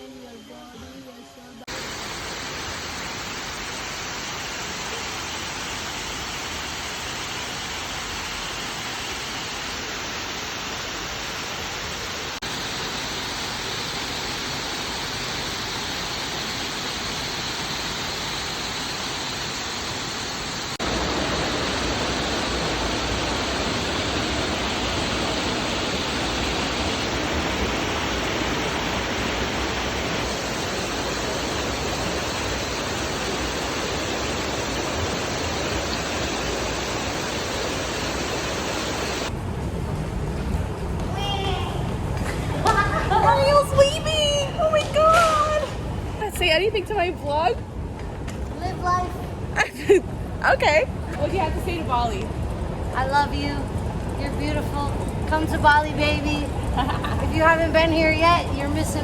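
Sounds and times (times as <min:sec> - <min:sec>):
waterfall rushing: 0:01.7 - 0:39.4.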